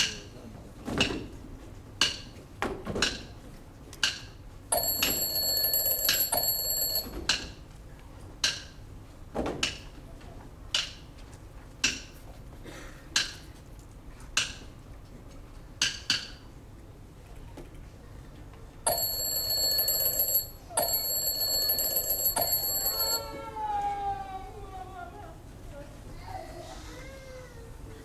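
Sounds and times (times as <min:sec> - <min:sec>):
metallic bell ringing: 0:18.9 - 0:23.4.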